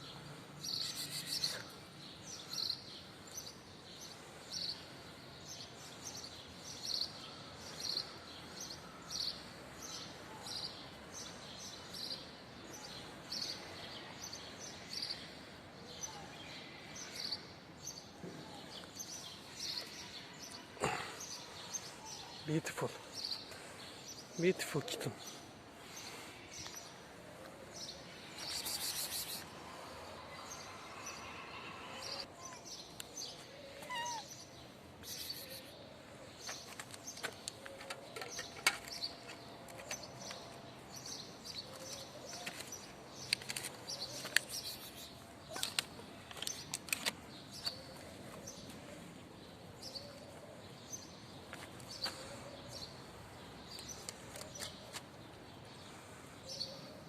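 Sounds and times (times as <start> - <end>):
kitten meowing: 33.8 - 34.3
clicks and rustles: 36.5 - 40.5, 41.8 - 44.6, 45.5 - 47.8.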